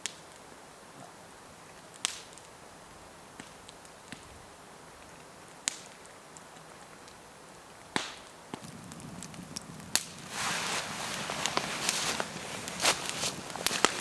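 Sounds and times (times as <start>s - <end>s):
low steady hiss: 0.0s - 14.0s
sharp snaps: 8.0s - 14.0s
rustling and handling noise: 9.9s - 14.0s.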